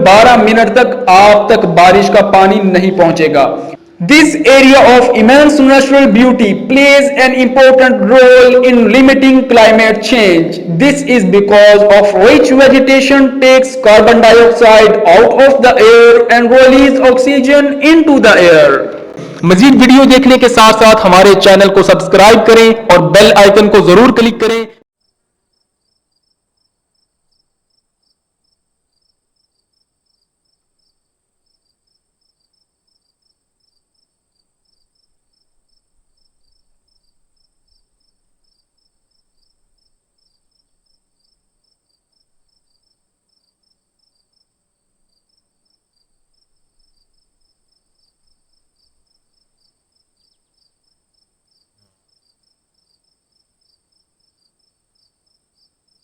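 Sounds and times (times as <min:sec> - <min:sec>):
crickets trilling and chirping: 0:25.0 - 0:56.0.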